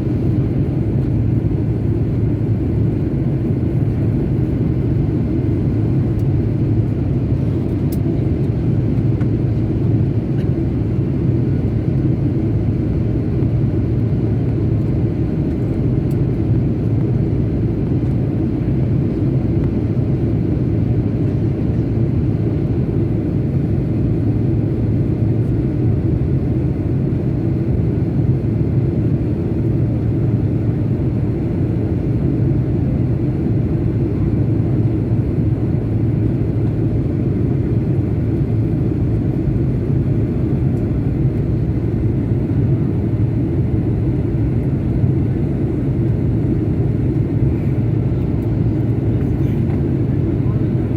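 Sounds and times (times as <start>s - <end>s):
airplane in flight rumble: 0.0s - 50.9s.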